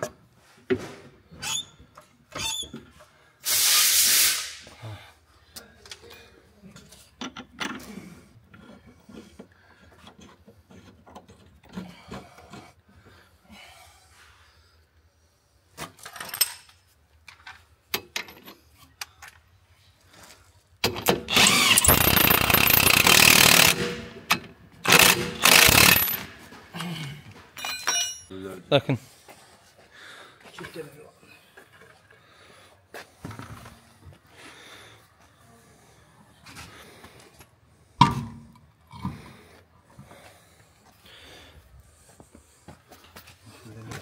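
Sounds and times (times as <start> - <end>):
loud power tool running: 21.3 - 24.2, 24.8 - 26.3.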